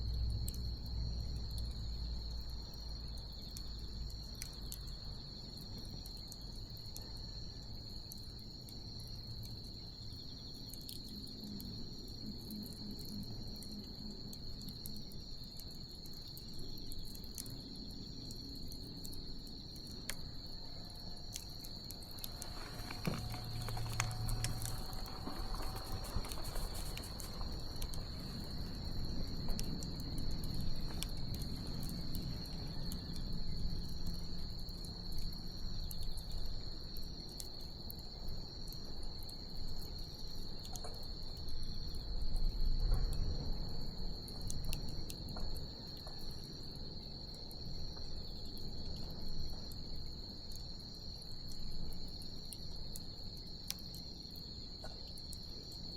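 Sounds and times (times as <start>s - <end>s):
insects trilling: 0.0s - 55.9s
bonfire crackling and popping: 21.4s - 33.2s.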